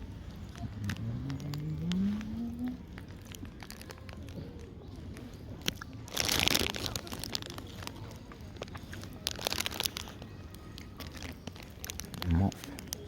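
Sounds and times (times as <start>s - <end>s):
campfire crackling and popping: 0.0s - 13.0s
low voice: 12.1s - 12.9s.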